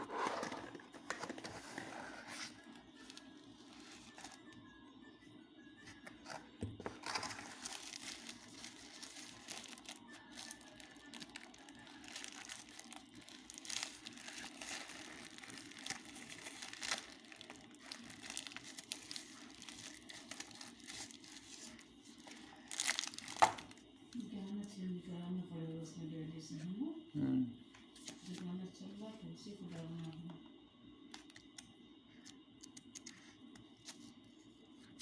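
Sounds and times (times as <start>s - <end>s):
packaging crinkling and crackling: 0.0s - 4.5s, 6.0s - 23.9s.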